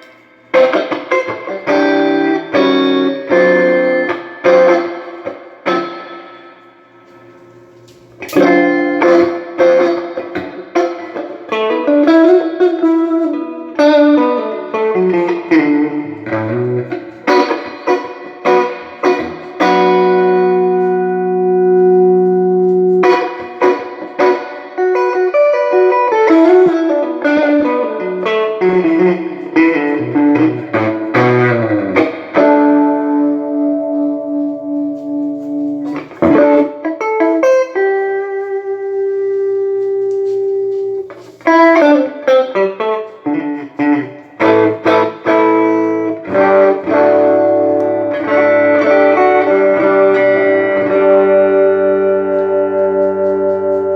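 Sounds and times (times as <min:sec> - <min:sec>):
electric guitar playing: 0:00.0 - 0:53.9.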